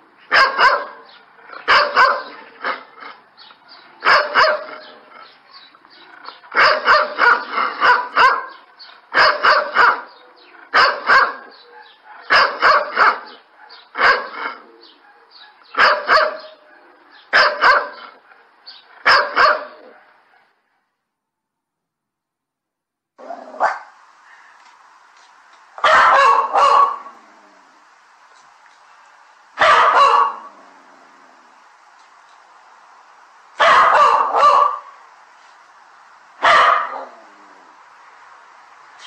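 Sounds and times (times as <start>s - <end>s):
dog barking loudly: 0.2s - 3.2s, 4.0s - 5.0s, 6.4s - 18.2s, 18.9s - 20.5s, 23.2s - 24.0s, 25.8s - 27.2s, 29.6s - 30.6s, 33.6s - 35.0s, 36.4s - 37.3s.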